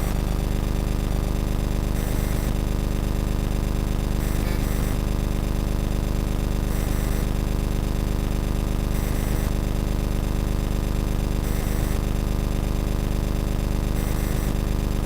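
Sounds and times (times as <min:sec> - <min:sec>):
low buzzing hum: 0:00.0 - 0:06.9.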